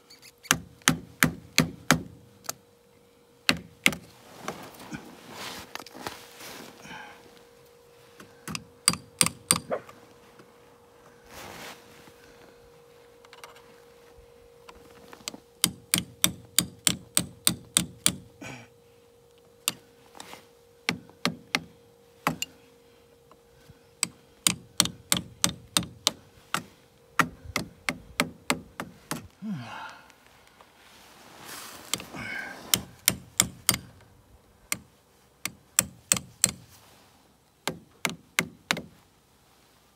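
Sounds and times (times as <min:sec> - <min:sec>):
faint steady hum: 0:00.0 - 0:39.9
hammer striking pins: 0:08.5 - 0:09.7.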